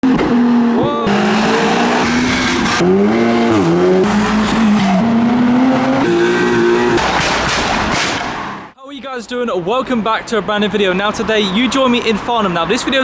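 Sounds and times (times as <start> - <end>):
car engine revving: 0.0 - 8.7.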